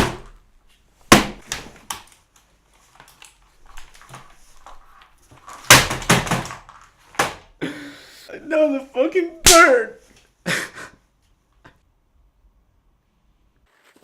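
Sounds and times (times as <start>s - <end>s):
keyboard being smashed: 1.1s - 2.1s, 5.5s - 7.5s, 9.4s - 9.8s.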